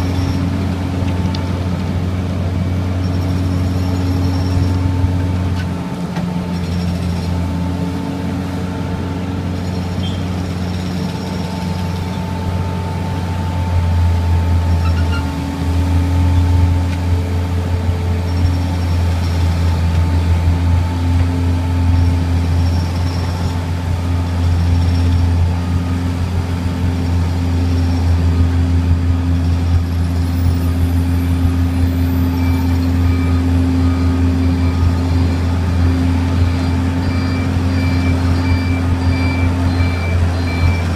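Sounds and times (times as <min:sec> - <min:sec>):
diesel engine humming: 0:00.0 - 0:40.9.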